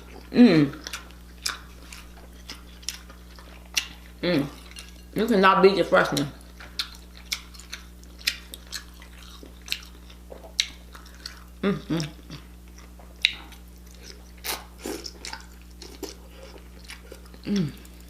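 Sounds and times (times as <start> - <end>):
wet chewing and mouth smacks: 0.0 - 5.1, 6.2 - 18.0
person humming: 0.3 - 0.8, 4.2 - 4.6, 11.6 - 12.4, 17.4 - 17.9.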